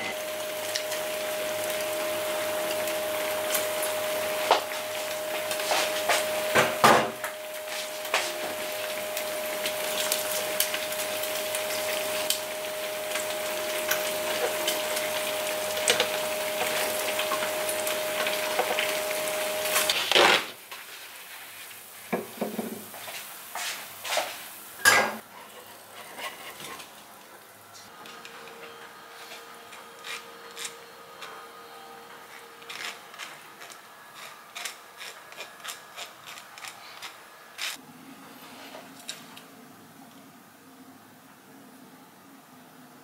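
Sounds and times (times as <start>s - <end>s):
meat sizzling in a pan: 0.0s - 27.0s
spatula scraping a pan: 25.2s - 27.0s, 32.2s - 37.8s.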